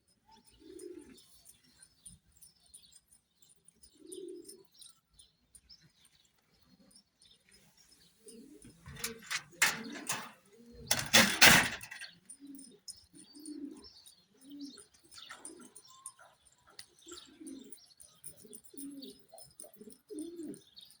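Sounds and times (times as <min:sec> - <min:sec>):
pigeons cooing: 0:00.5 - 0:01.2, 0:13.4 - 0:16.0, 0:17.0 - 0:17.8, 0:18.4 - 0:20.7.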